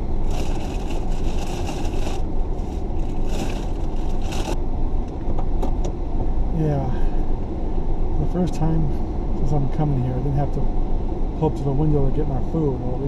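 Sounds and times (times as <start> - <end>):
car engine idling: 0.0 - 4.6
paper bag rustling: 0.0 - 4.6.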